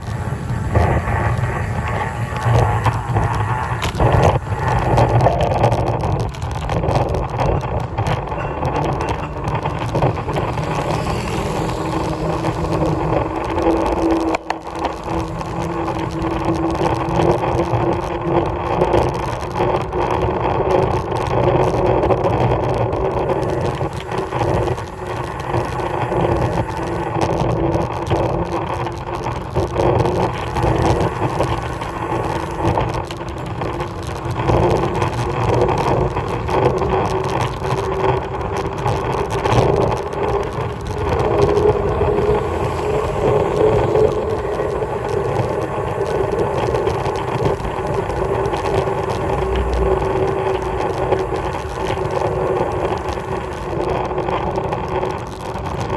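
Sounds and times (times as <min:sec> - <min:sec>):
road rumble: 0:00.0 - 0:55.9
wind on microphone: 0:00.0 - 0:55.9
motor hum: 0:23.2 - 0:28.1, 0:30.3 - 0:35.2, 0:39.5 - 0:54.5.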